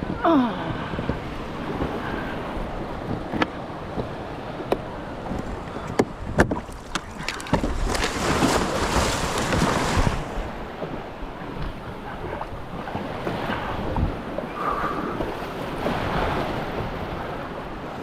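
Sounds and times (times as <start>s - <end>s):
surf rushing in: 6.7s - 11.3s.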